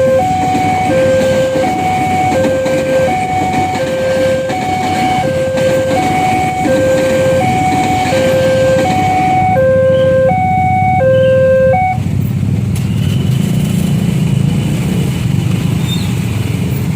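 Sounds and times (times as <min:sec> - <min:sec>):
level crossing alarm two tones: 0:00.0 - 0:12.0
vehicle engines rumbling: 0:00.0 - 0:16.9.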